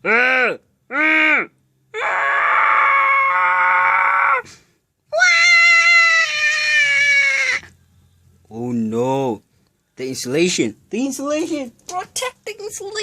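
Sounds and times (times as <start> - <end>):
long high-pitched screams: 0.0 - 4.5, 5.1 - 7.8.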